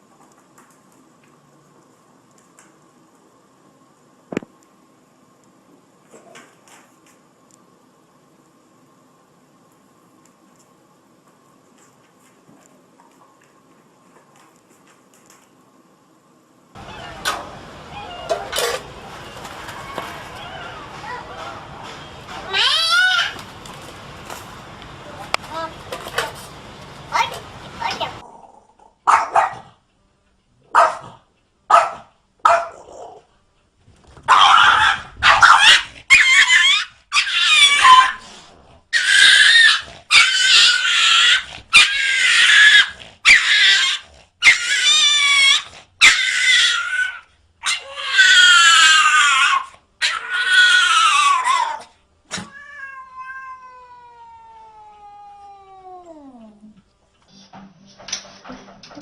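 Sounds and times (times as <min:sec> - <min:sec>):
cat yowling: 0:16.8 - 0:21.4, 0:22.4 - 0:23.4, 0:34.3 - 0:38.2, 0:39.0 - 0:56.6.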